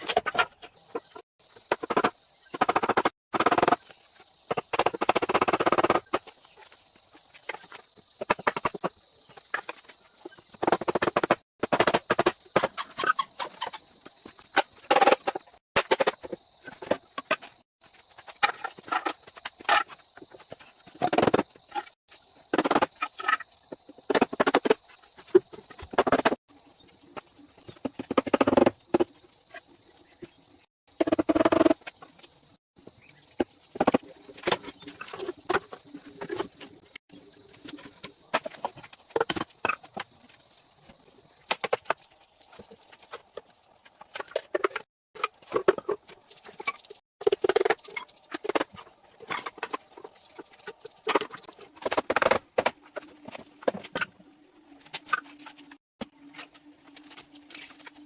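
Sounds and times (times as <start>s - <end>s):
hand tools knocking and scraping wood: 4.5s - 26.4s, 27.2s - 29.2s, 41.5s - 54.2s.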